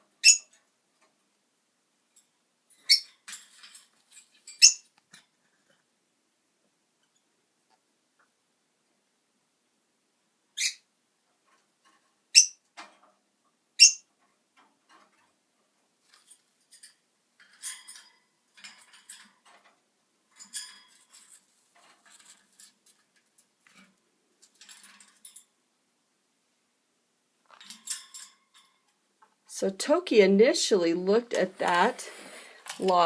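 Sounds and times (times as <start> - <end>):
faint clicking and rustling: 0.0 - 6.0, 6.6 - 9.1, 11.2 - 25.9, 27.4 - 30.3, 31.1 - 33.0
parrot chirps: 0.2 - 0.5, 2.8 - 3.1, 4.6 - 4.9, 10.6 - 10.9, 12.3 - 12.6, 13.8 - 14.1.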